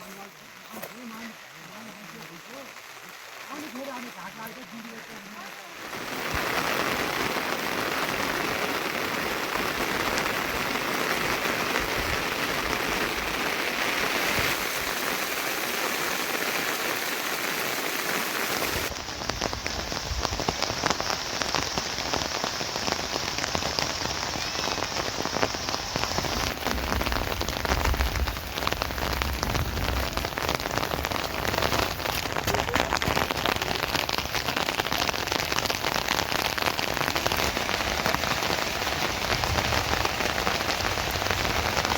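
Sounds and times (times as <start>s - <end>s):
rain falling: 0.0s - 41.9s
deep rumble: 26.2s - 33.4s.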